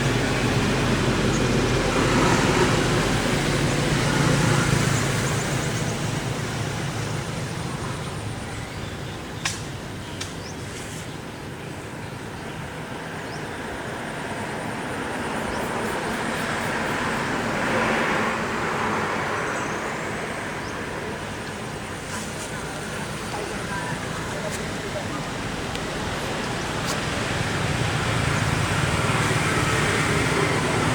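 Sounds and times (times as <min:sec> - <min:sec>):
vehicles passing: 0:00.0 - 0:30.9.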